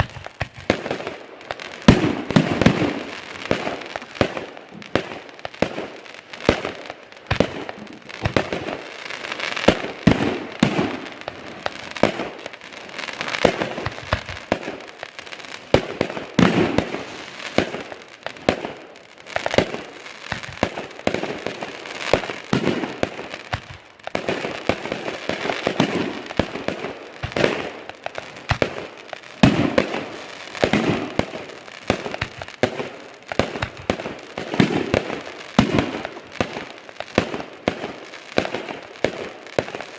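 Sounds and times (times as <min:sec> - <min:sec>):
fireworks bangs and booms: 0:00.0 - 0:39.9
fireworks crackling: 0:00.0 - 0:39.9.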